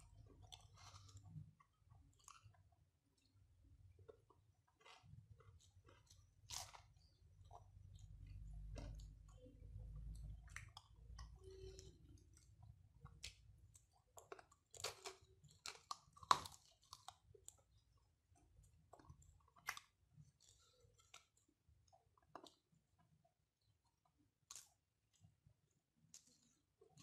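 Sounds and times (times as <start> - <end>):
chewing and wet lip smacks: 4.7 - 17.7.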